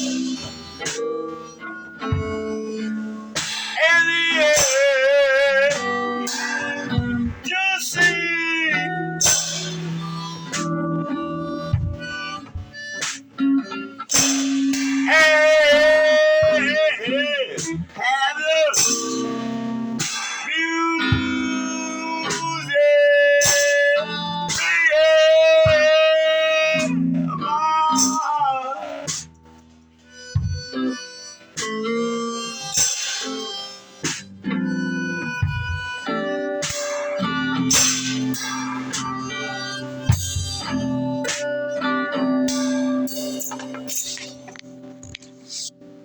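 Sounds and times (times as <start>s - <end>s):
guitar music: 0.0s - 46.0s
wavering held melody note: 14.4s - 20.0s.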